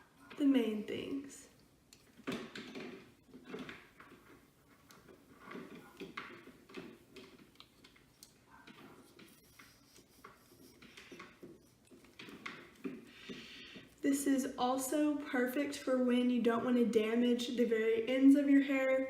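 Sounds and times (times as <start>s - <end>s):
soft handling noises: 0.0s - 15.1s.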